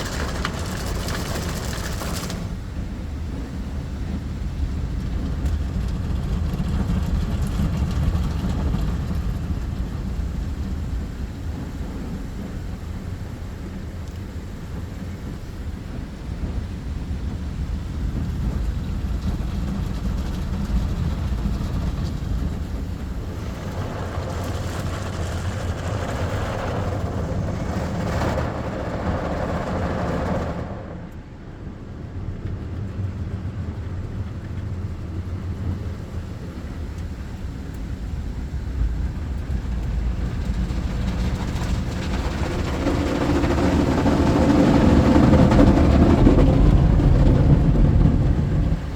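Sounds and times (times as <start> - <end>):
car wash machinery rumble: 0.0 - 48.9.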